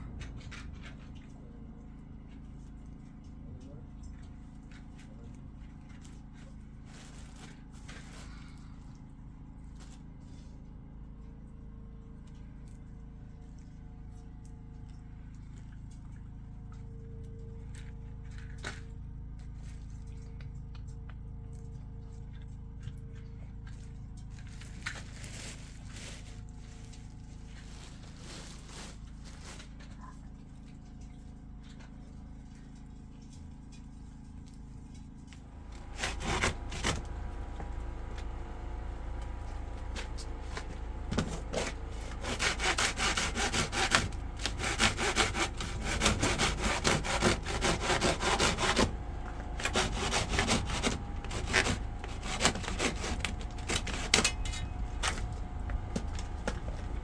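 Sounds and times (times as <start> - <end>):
low steady hum: 0.0 - 57.0
rasping scraping strokes: 35.6 - 57.0.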